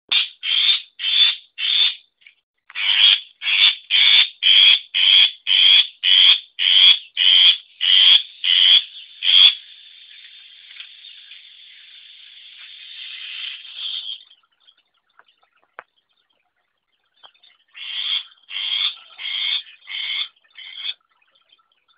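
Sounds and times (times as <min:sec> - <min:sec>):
shrike harsh repeated calls: 0:00.1 - 0:02.0, 0:02.8 - 0:10.1, 0:17.7 - 0:21.0
high bird chatter: 0:06.6 - 0:21.9.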